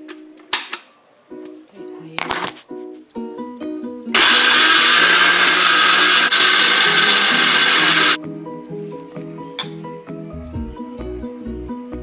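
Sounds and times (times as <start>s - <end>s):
plucked background music: 1.3s - 12.0s
electric blender running: 4.2s - 8.2s.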